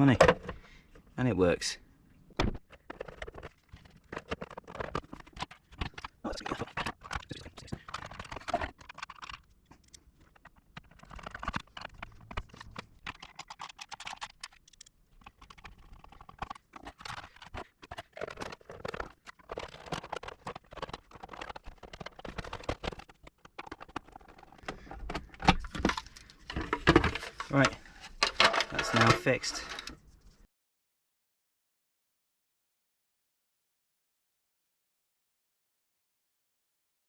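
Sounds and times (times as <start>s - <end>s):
objects being handled: 2.2s - 30.5s.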